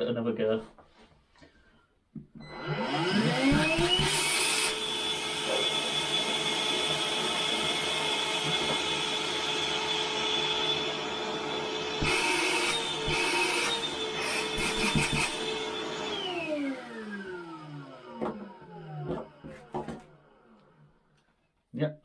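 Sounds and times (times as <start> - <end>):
vacuum cleaner motor running: 2.4 - 20.8.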